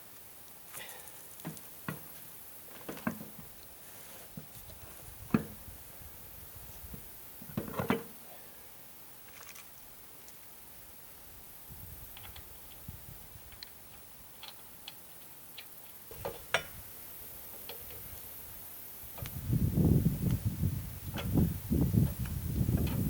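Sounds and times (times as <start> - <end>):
small hard objects clicking: 9.3 - 10.4.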